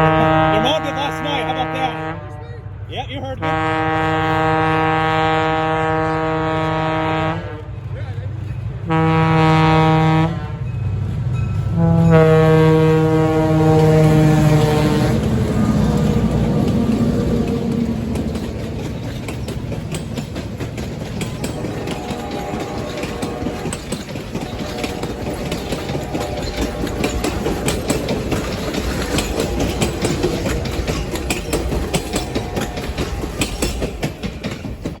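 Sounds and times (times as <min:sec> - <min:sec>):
train rumble: 0:00.0 - 0:35.0
wheels clicking over rail joints: 0:13.6 - 0:35.0.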